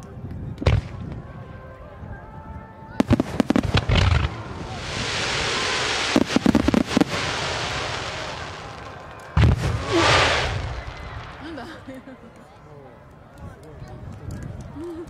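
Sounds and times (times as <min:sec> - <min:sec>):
firework bangs: 0:03.0 - 0:12.1.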